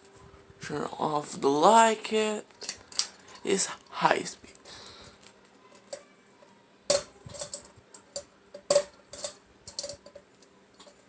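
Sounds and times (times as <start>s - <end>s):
ceiling fan humming: 0.0s - 11.0s.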